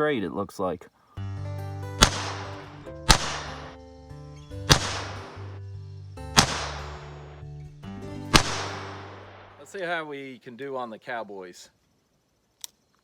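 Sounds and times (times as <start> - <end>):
background music: 1.2 - 9.8
revolver shots with echo: 2.0 - 2.5, 4.7 - 5.2, 6.4 - 6.9, 8.3 - 9.1.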